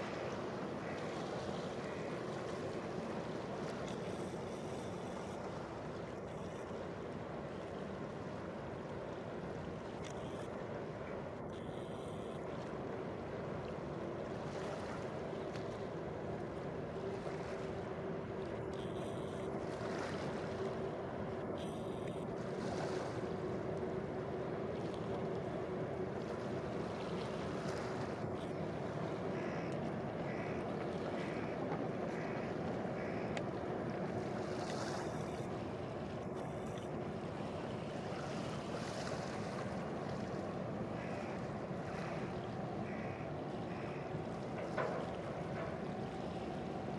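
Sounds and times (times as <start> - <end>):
faint steady hum: 0.0 - 46.9
waves: 0.0 - 46.9
wind: 0.0 - 46.9
ship engines rumbling: 6.8 - 46.9
ferry engine rumble: 39.7 - 46.9.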